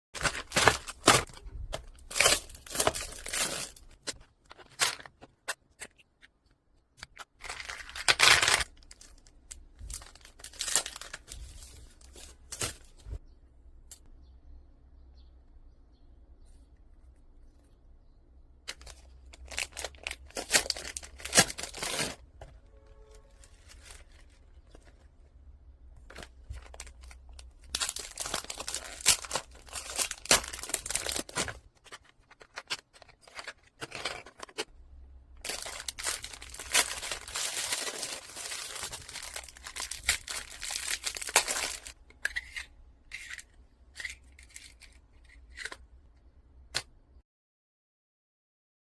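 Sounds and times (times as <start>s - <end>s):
packaging torn and crinkled: 0.2s - 5.3s, 7.3s - 12.9s, 18.7s - 22.2s, 23.4s - 25.0s, 26.0s - 34.7s, 35.4s - 42.0s.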